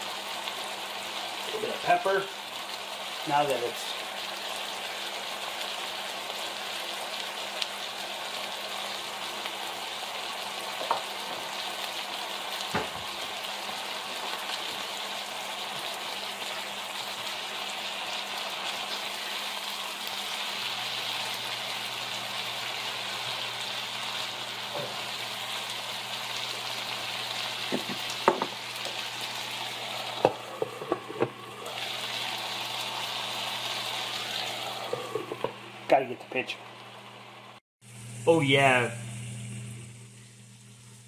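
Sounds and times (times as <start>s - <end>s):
vegetables sizzling in skillet: 0.0s - 41.0s
sharp knocks against pan: 27.7s - 28.6s.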